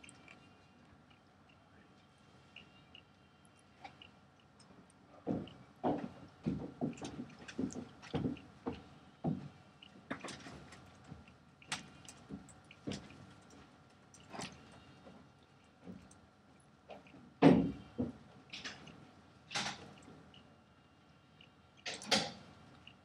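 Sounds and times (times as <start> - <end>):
person chewing crunchy biscuit: 0.0 - 0.5.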